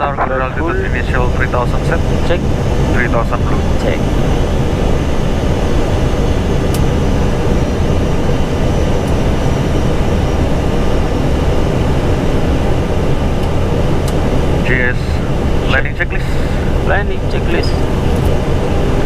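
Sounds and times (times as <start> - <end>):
aircraft engine noise: 0.0 - 19.0.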